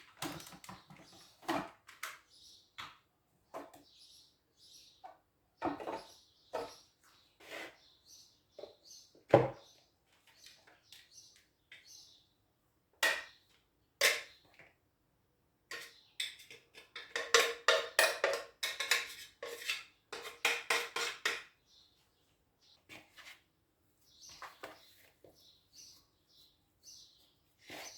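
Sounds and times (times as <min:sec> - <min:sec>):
kitchenware knocks and clinks: 0:05.6 - 0:06.8, 0:13.0 - 0:13.4, 0:14.0 - 0:14.4, 0:15.7 - 0:21.6.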